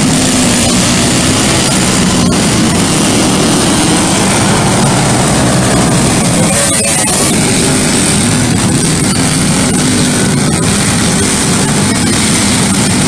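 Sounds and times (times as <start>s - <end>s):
go-kart engine running: 0.0s - 13.0s.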